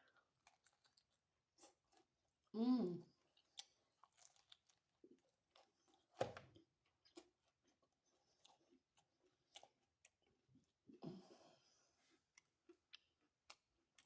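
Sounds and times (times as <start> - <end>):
chewing mouth clicks and smacks: 12.3 - 14.0.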